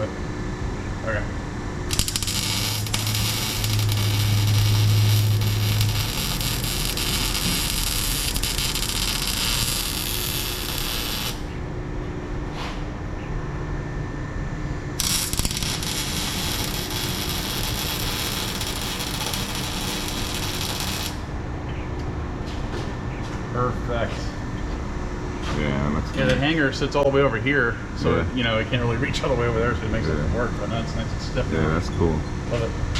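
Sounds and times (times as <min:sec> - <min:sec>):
welding hiss: 0:01.9 - 0:11.6, 0:15.0 - 0:21.3.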